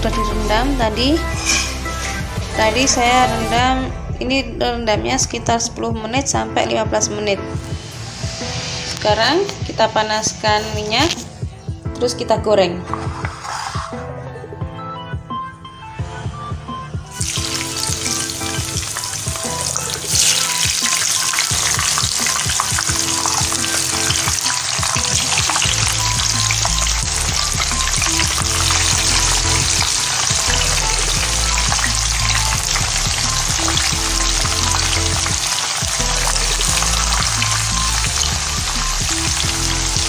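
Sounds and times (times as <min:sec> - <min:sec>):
food deep-frying in oil: 0:17.1 - 0:40.0.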